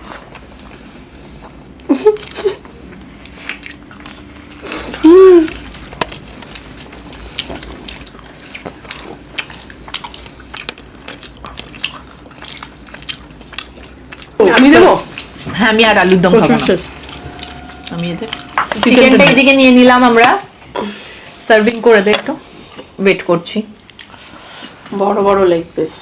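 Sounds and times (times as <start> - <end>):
chewing smacks: 0.0 - 19.5, 23.8 - 24.8
person humming exclamation: 4.9 - 5.6.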